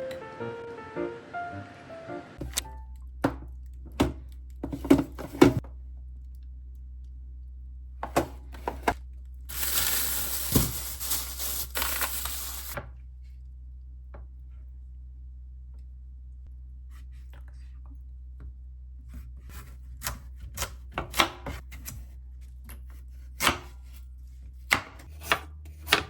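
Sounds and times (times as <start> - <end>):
packaging tearing and crinkling: 9.5 - 12.8.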